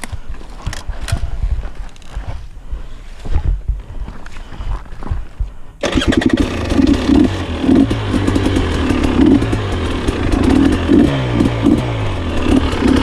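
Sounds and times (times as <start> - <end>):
two-stroke motorcycle engine revving: 5.8 - 13.0.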